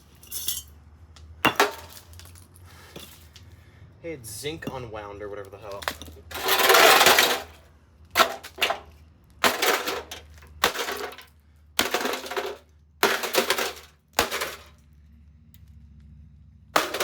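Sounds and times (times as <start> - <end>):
microwave being smashed: 1.5 - 2.2, 5.8 - 7.6, 8.2 - 14.7, 16.8 - 17.0
metal and plastic parts clattering: 5.7 - 7.6, 8.2 - 14.8, 16.8 - 17.0.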